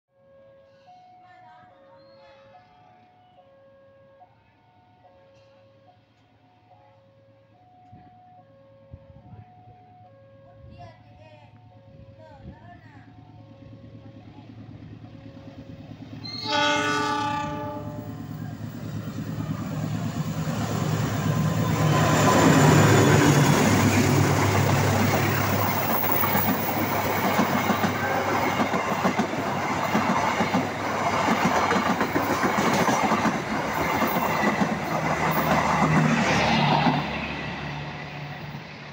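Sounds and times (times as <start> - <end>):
train horn blast: 16.2 - 18.4.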